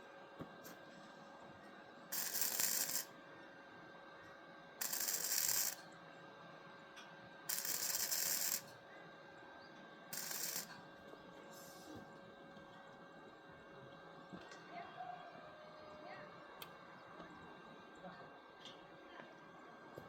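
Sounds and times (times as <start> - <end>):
hissing bursts: 2.2 - 3.0, 4.8 - 5.8, 7.5 - 8.6, 10.2 - 10.7.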